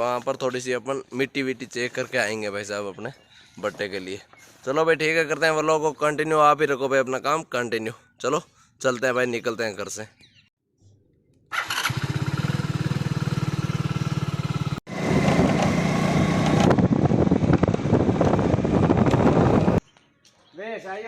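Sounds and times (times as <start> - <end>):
motorcycle engine running: 11.6 - 19.8.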